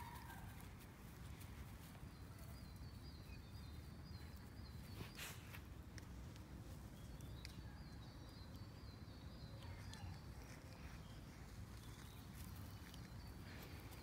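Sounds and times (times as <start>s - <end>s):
light ticks: 5.9s - 6.5s, 7.1s - 8.9s.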